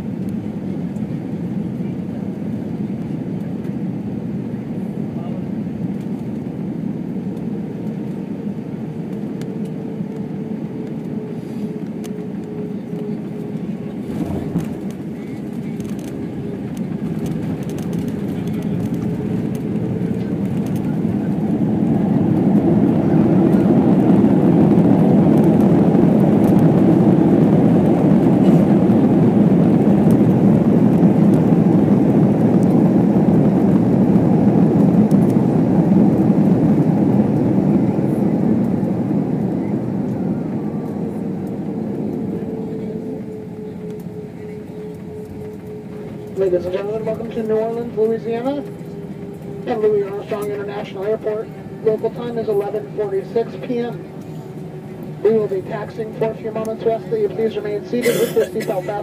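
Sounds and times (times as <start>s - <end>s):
airplane cabin rushing noise: 9.0s - 59.0s.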